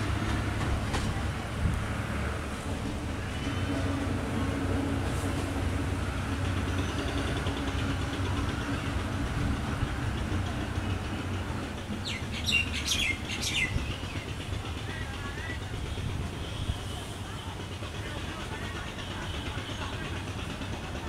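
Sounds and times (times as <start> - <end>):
train rumbling: 0.0 - 21.0
bird chirping: 12.0 - 14.0.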